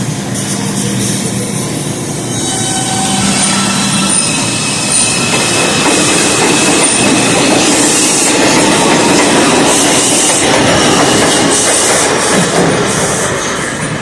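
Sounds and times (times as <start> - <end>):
high-pitched wheel squeals: 2.3 - 5.4
train wheels clattering on rails: 3.6 - 14.0.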